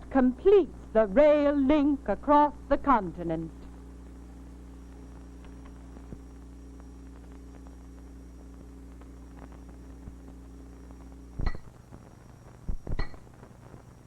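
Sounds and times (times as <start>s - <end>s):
film soundtrack hum and crackle: 0.0s - 14.0s.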